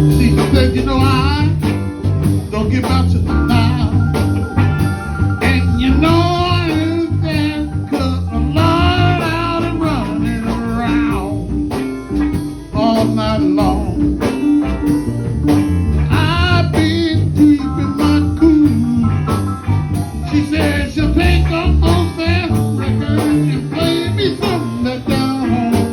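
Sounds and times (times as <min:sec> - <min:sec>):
lead singer with vibrato: 0:00.0 - 0:01.7, 0:05.4 - 0:11.5, 0:12.7 - 0:14.1, 0:16.1 - 0:19.2, 0:20.3 - 0:25.9
band playing a song: 0:00.0 - 0:25.9.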